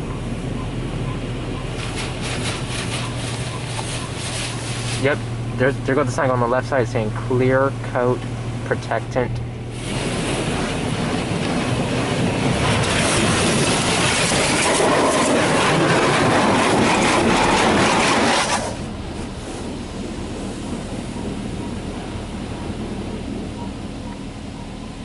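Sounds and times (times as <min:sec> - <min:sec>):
low machinery hum: 0:00.0 - 0:25.0
loud hiss of spray: 0:01.8 - 0:05.2, 0:09.7 - 0:11.1.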